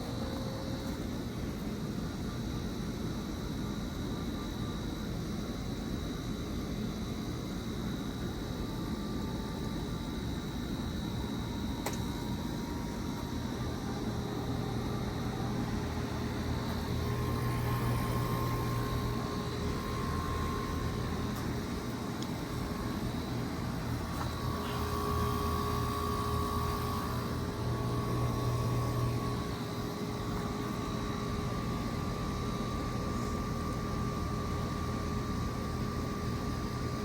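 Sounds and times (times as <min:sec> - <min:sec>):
heat pump compressor hum: 0:00.0 - 0:37.0
heat pump whine: 0:00.0 - 0:37.0.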